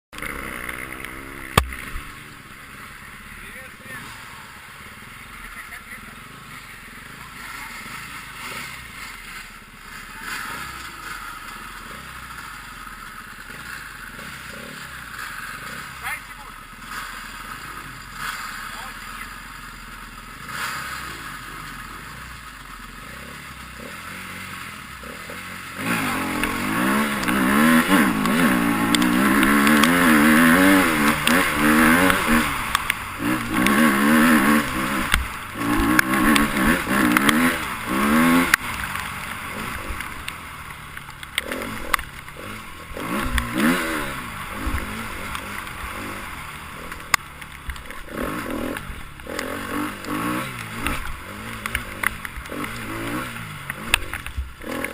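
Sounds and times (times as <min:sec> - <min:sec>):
motorcycle engine revving: 0:00.0 - 0:54.9
sharp clicks: 0:26.3 - 0:30.2, 0:30.8 - 0:37.7.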